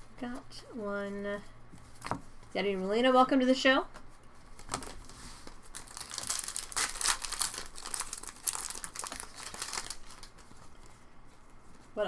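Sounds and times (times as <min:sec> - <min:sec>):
foil wrappers crinkling and tearing: 0:04.5 - 0:12.0.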